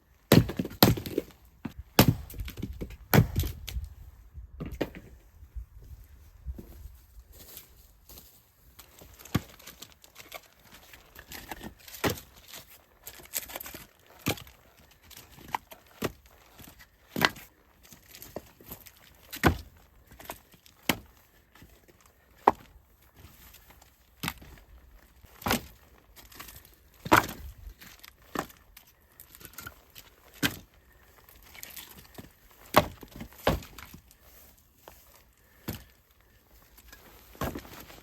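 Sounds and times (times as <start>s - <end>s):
firewood being chopped: 0.3s - 3.8s, 9.0s - 10.4s, 11.2s - 21.7s, 22.4s - 23.4s, 24.2s - 28.6s, 30.3s - 30.7s, 31.6s - 34.0s, 35.5s - 35.9s, 36.8s - 38.0s.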